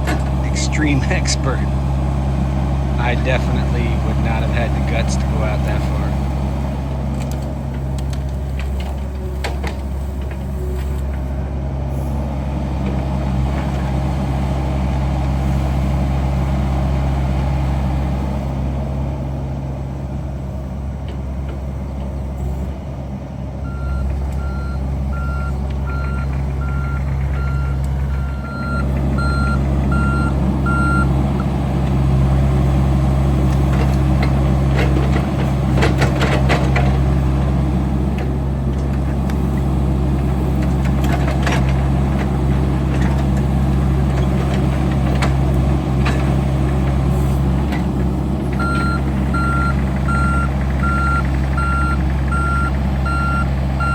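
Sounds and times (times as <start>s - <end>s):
diesel engine running: 0.0s - 53.9s
backup alarm beeping: 23.7s - 31.2s, 48.6s - 53.9s.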